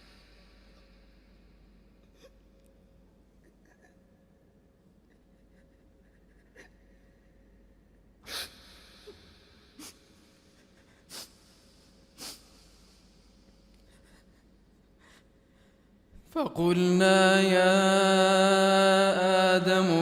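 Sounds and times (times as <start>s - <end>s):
faint room noise: 0.0s - 20.0s
man sniffing and sobbing: 9.8s - 15.3s.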